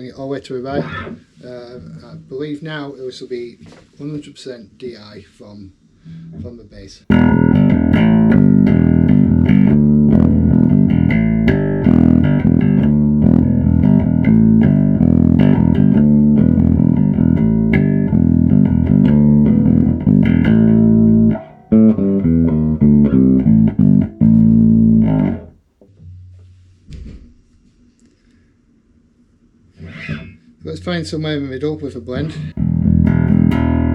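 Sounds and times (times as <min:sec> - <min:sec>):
bass guitar riff: 0:07.1 - 0:25.6, 0:32.6 - 0:33.9.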